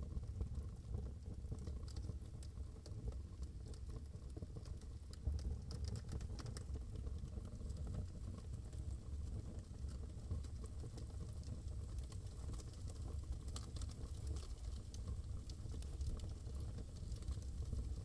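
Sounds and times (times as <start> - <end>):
wood fire crackling and popping: 10.9 - 17.4.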